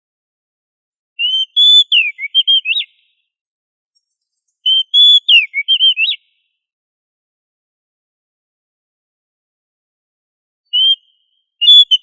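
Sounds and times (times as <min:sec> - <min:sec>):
bird singing whistled phrase: 0:01.2 - 0:03.3, 0:04.4 - 0:06.5, 0:10.7 - 0:12.0.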